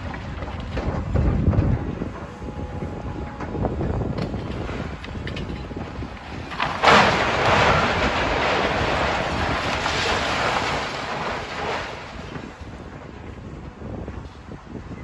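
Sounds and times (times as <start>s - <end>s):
heavy machinery rumble: 0.0s - 15.0s
rubble crashing: 4.2s - 12.6s
falling debris clattering: 4.3s - 12.6s.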